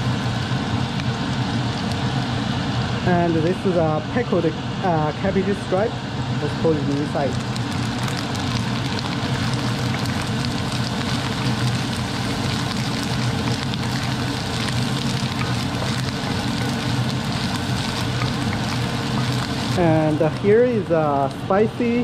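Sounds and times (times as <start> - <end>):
range hood fan hum: 0.0 - 22.0
food sizzling in hot oil: 5.6 - 22.0
wooden spatula stirring: 9.8 - 20.5.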